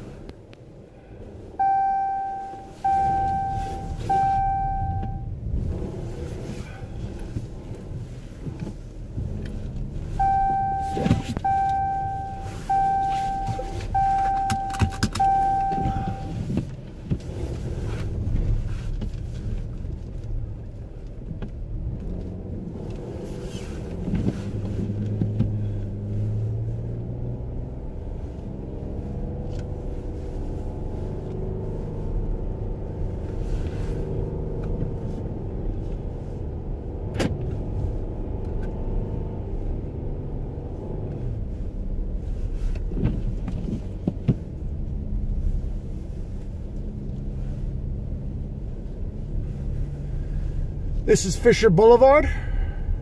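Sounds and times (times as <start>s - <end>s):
car engine and cabin rumble: 0.0s - 53.0s
car warning chime beeping: 1.6s - 5.3s, 10.2s - 16.4s.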